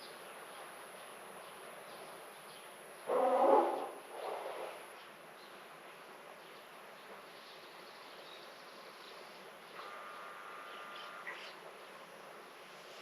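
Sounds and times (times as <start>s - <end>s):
faint steady hiss: 0.0s - 13.0s
insect buzz: 9.8s - 11.6s.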